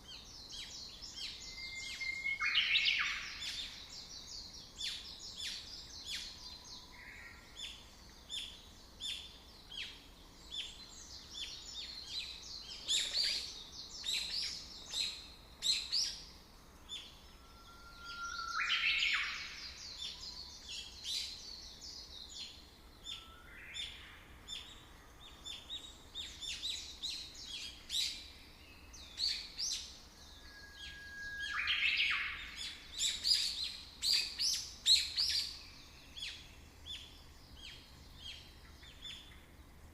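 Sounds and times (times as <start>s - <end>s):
birds chirping: 0.1s - 39.9s
rising bird call: 17.3s - 19.6s.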